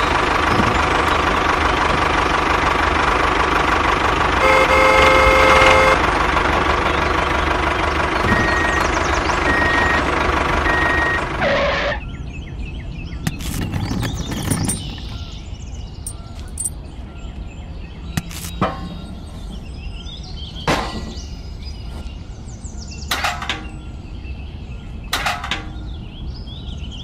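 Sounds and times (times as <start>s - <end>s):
clicks of model parts: 18.2s - 18.6s.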